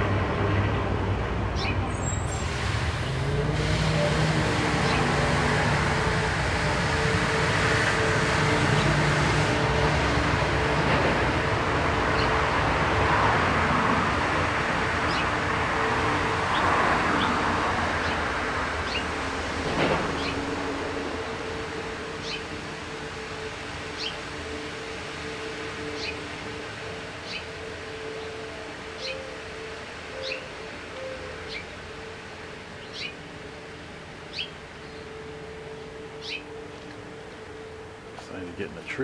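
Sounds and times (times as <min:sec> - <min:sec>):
passing vehicle engine rumble: 0:00.0 - 0:39.0.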